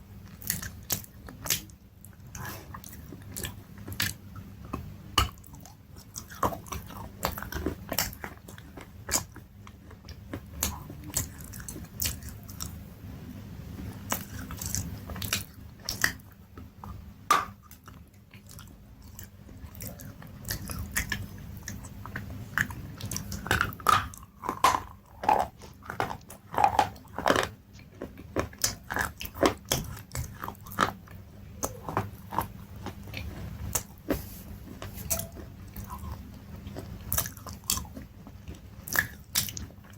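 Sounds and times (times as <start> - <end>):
person chewing crunchy food: 0.2 - 12.8, 13.7 - 39.9.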